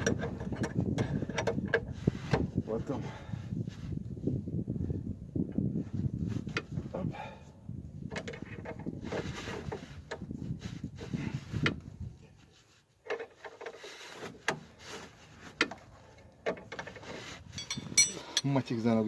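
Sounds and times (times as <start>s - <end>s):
hand tools clicking and scraping metal: 16.5s - 18.6s.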